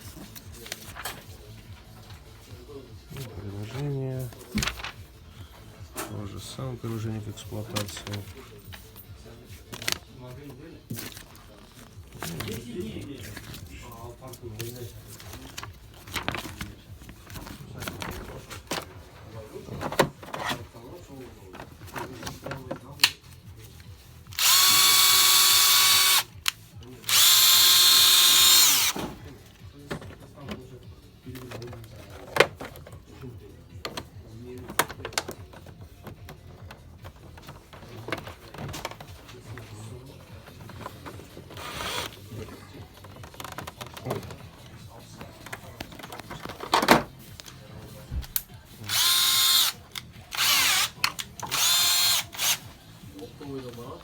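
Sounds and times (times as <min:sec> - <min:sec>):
cordless drill motor whine: 0:24.4 - 0:26.3, 0:27.1 - 0:29.0, 0:41.6 - 0:42.1, 0:48.9 - 0:52.6.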